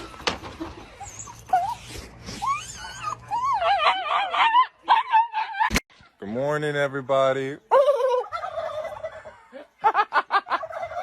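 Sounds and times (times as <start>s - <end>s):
dog whining and whimpering: 0.0s - 5.7s.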